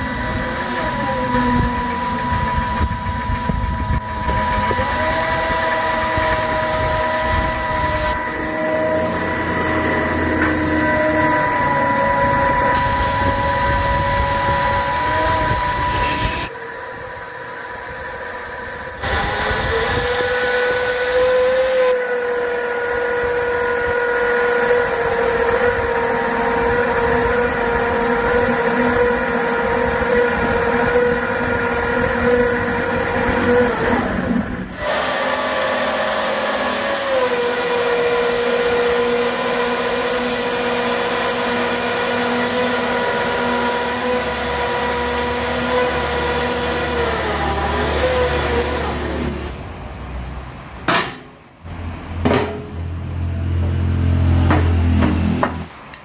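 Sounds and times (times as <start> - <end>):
small electric motor whining: 0.0 - 49.5
hiss: 12.7 - 16.5.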